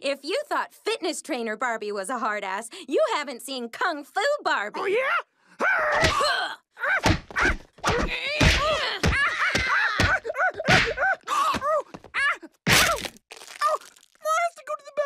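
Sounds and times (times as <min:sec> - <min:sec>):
shouted grunts and cries: 0:04.7 - 0:12.6.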